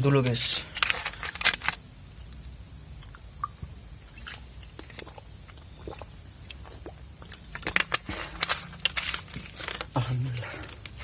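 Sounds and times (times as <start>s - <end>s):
person swallowing: 4.8s - 7.0s.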